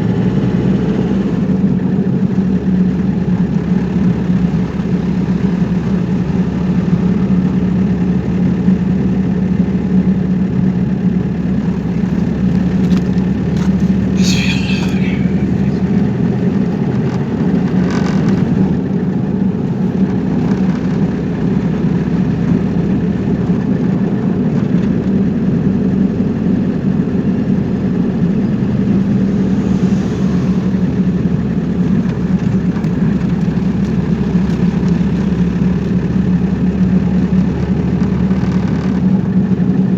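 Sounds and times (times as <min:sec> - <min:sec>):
road noise: 0:00.0 - 0:25.2, 0:25.8 - 0:38.3
car engine drone: 0:00.0 - 0:39.9
brief high-pitched sounds: 0:14.1 - 0:16.0.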